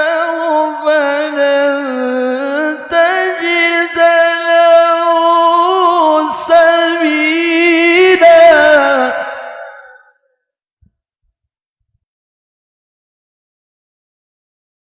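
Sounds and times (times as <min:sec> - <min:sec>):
person singing long held notes: 0:00.0 - 0:10.1.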